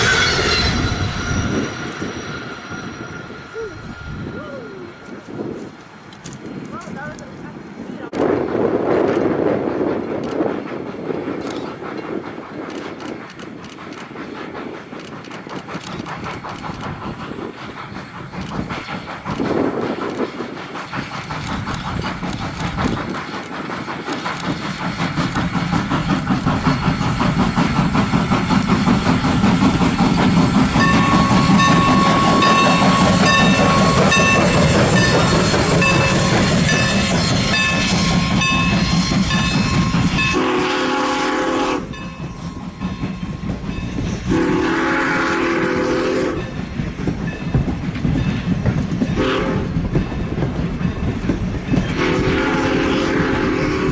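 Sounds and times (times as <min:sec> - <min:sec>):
steady high-pitched tone: 0:00.0 - 0:05.3
train running on track: 0:00.0 - 0:53.9.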